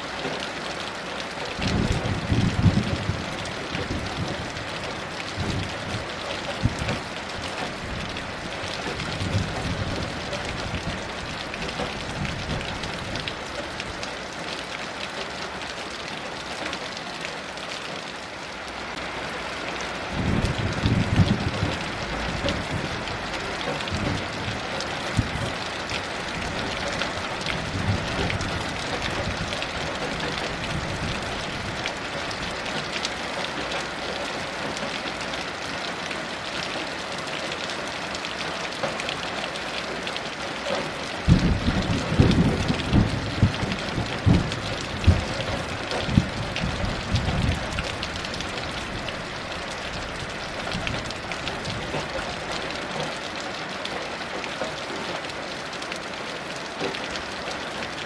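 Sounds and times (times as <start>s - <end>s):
heavy rain: 0.0s - 58.0s
thunder rumbling: 1.6s - 13.4s, 20.1s - 31.8s, 41.2s - 52.1s.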